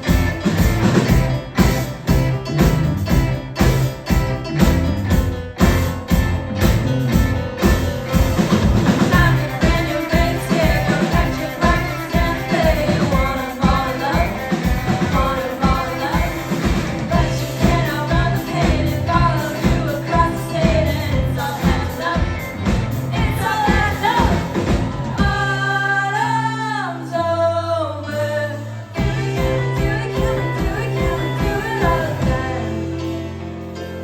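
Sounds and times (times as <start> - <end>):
drums: 0.0 - 26.5, 28.1 - 34.0
bass guitar: 0.0 - 34.0
guitar: 0.0 - 34.0
lead singer singing: 8.8 - 33.4.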